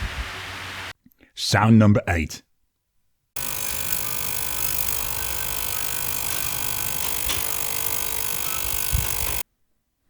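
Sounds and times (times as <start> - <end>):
ultrasonic cleaner buzzing hum: 3.4 - 9.4.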